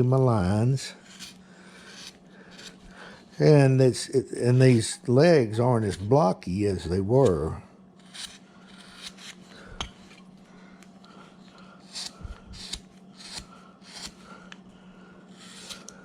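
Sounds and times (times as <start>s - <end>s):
steady low hum: 0.0s - 16.0s
carving tool scraping wood: 0.9s - 3.6s, 8.0s - 10.2s, 11.8s - 14.4s, 15.3s - 16.0s.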